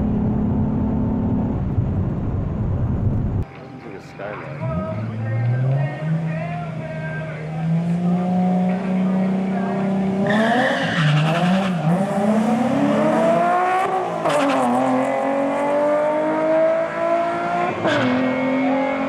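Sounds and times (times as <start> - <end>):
car engine revving at full throttle: 0.0 - 3.4, 7.4 - 19.0.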